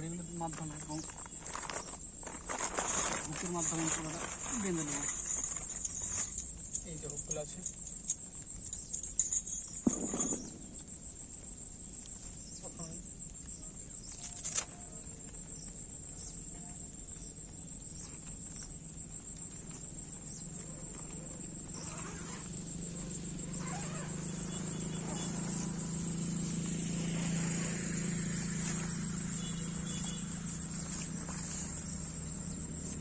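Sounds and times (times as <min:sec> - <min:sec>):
crickets trilling: 0:00.0 - 0:33.0.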